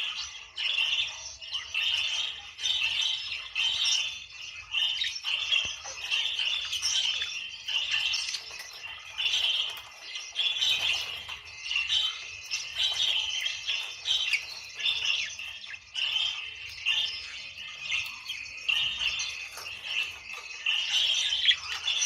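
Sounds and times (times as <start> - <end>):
budgerigars chattering and warbling: 0.0 - 22.0.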